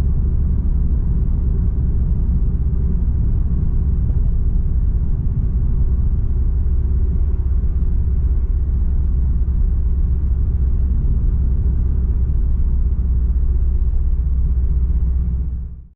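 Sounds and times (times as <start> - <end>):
car engine low drone: 0.0 - 15.9.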